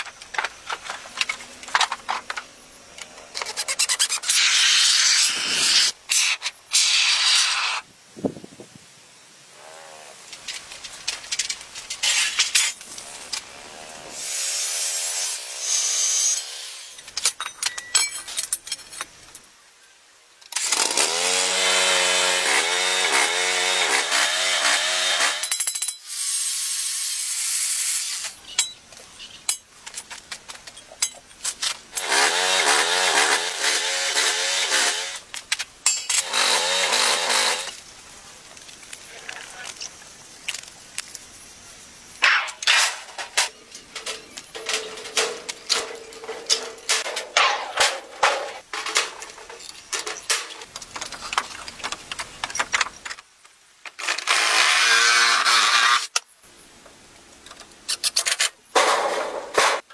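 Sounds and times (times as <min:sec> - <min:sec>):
power saw cutting wood: 0:20.6 - 0:25.5, 0:32.0 - 0:35.2, 0:36.2 - 0:37.7, 0:54.0 - 0:56.1.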